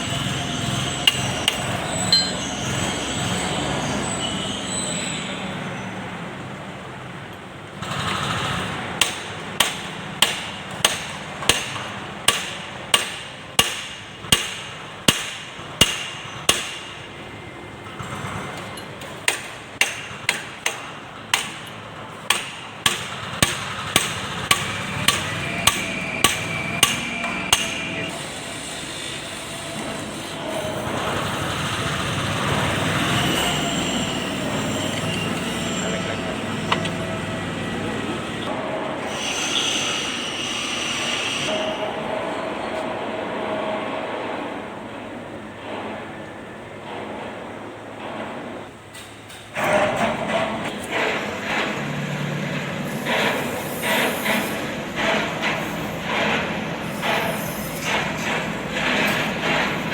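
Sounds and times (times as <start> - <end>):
hammer striking steel: 0.0 - 2.8, 9.0 - 17.1, 19.0 - 28.4.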